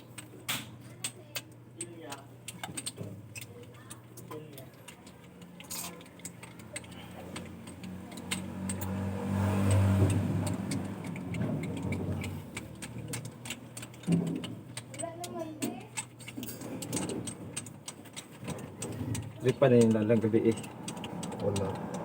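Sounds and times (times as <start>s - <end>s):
sharp ticks: 1.0s - 22.0s
vehicle engine running: 6.1s - 14.5s, 18.5s - 22.0s.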